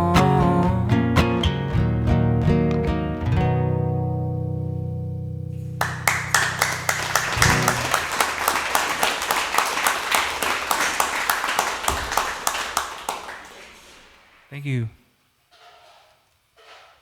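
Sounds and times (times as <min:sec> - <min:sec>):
acoustic guitar chord ringing: 0:00.0 - 0:08.2
audience applauding: 0:05.8 - 0:14.5.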